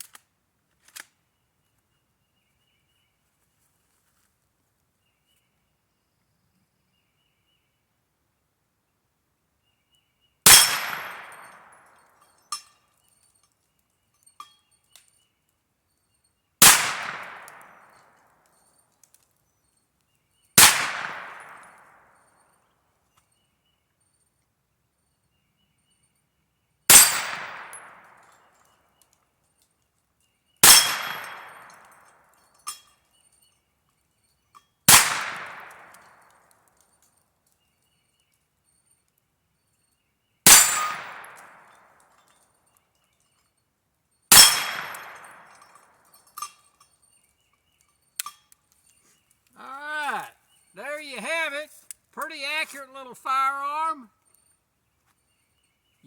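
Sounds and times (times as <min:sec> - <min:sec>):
gunshots with echoing tail: 0:10.5 - 0:11.7, 0:16.6 - 0:17.8, 0:20.6 - 0:21.8, 0:30.6 - 0:31.9, 0:34.9 - 0:36.0, 0:44.3 - 0:45.5.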